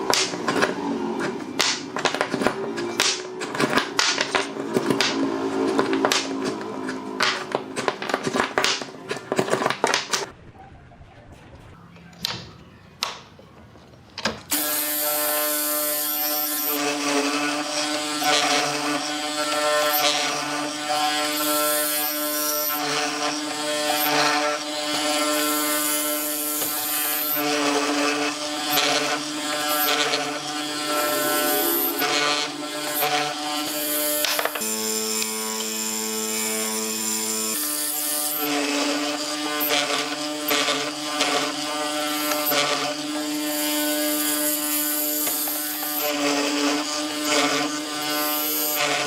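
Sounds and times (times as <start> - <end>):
small electric motor whining: 14.5 - 49.0.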